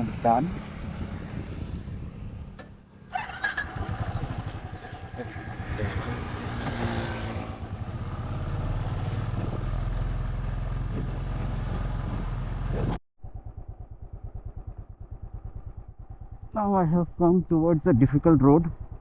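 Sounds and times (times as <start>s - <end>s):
wind noise: 0.0s - 2.6s, 3.2s - 10.2s
motorcycle engine running: 0.0s - 19.0s.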